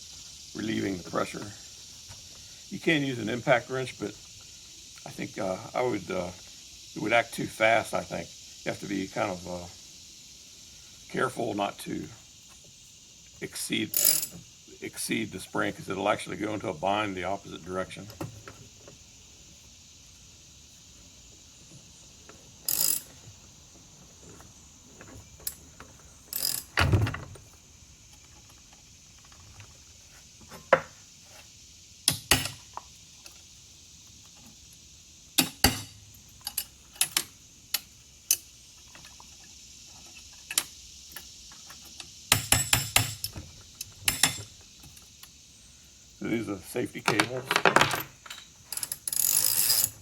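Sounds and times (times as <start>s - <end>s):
metal hand tools clanking: 13.9s - 14.4s, 44.1s - 44.5s
ratchet clicks: 13.9s - 14.4s, 22.6s - 23.1s, 26.3s - 26.8s, 40.1s - 45.4s, 48.2s - 50.0s.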